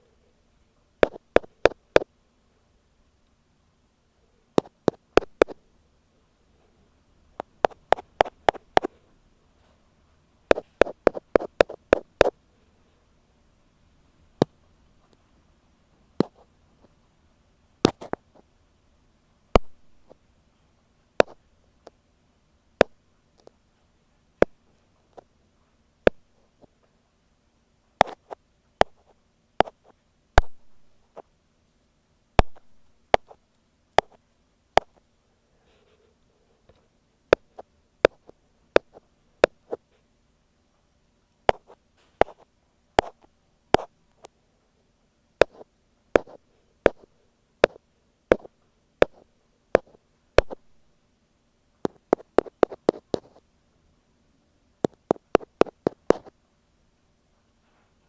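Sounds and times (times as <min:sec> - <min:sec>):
ear pick tapping on microphone: 0:01.0 - 0:02.1, 0:04.6 - 0:05.6, 0:07.4 - 0:09.0, 0:10.5 - 0:12.4, 0:19.6 - 0:20.2, 0:21.2 - 0:21.4, 0:30.4 - 0:30.6, 0:32.4 - 0:33.4, 0:34.0 - 0:34.2, 0:37.3 - 0:39.8, 0:41.5 - 0:42.4, 0:43.0 - 0:44.3, 0:45.4 - 0:45.6, 0:46.2 - 0:49.2, 0:49.8 - 0:50.6, 0:51.8 - 0:53.4, 0:54.8 - 0:56.3.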